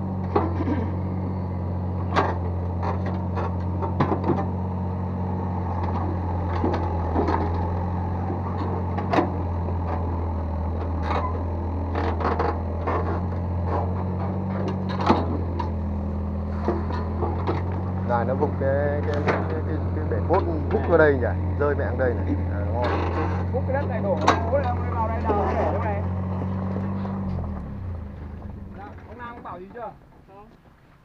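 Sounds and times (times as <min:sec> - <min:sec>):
excavator engine running: 0:00.0 - 0:31.0
knocks and scrapes in soil: 0:05.6 - 0:29.3.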